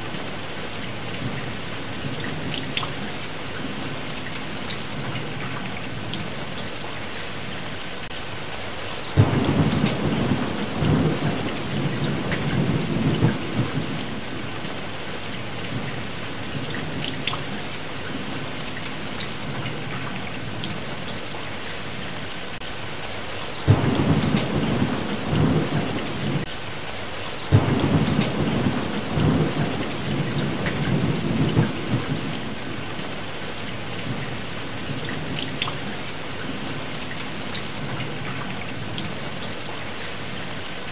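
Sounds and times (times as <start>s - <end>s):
steady rain: 0.0s - 40.9s
thunder cracking and rumbling: 9.2s - 14.9s, 23.7s - 26.5s, 27.5s - 35.8s.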